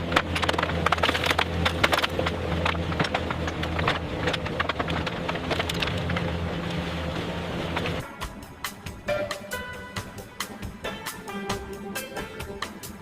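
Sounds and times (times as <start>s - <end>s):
sharp clicks and knocks: 0.0s - 6.4s.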